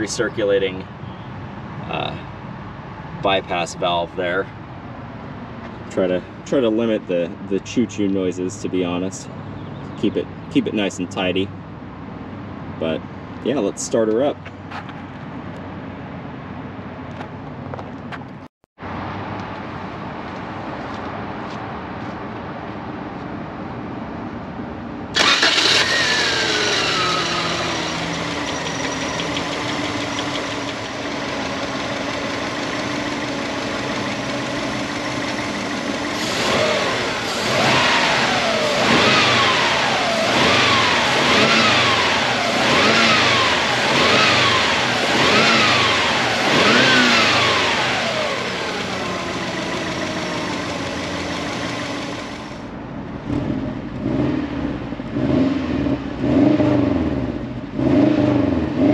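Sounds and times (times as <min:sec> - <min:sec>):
car engine starting and idling: 0:25.1 - 0:55.2
engine revving blips: 0:25.2 - 0:52.6, 0:53.3 - 0:58.9.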